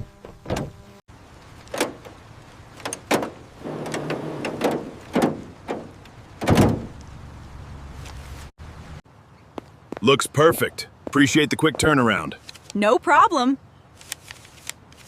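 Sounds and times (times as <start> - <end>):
rustling: 1.4 - 8.5, 13.9 - 15.0
sharp knocks and clunks: 1.7 - 2.2, 2.8 - 7.0.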